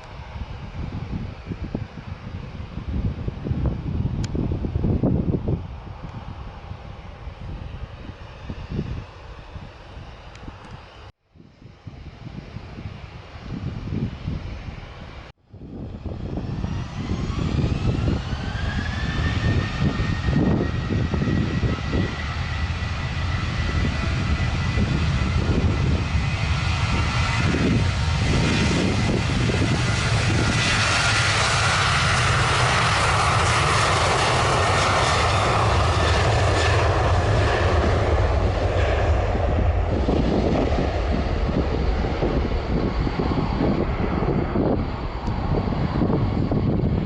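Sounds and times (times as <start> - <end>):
jet engines spooling up: 15.7 - 47.0.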